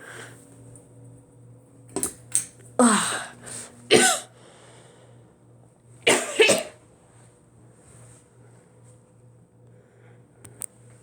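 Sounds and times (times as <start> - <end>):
person coughing: 2.8 - 4.3, 6.1 - 6.8.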